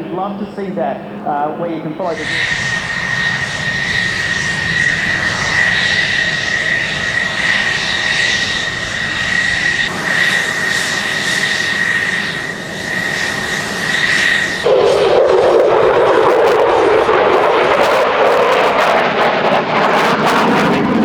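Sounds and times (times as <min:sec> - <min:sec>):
jet engine whine and roar: 0:00.0 - 0:21.0.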